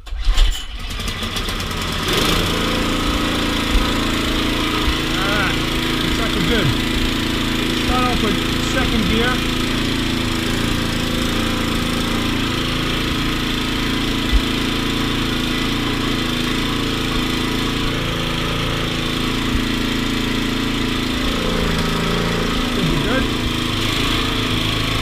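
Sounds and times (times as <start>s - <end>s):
snowblower engine running: 0.2s - 25.0s.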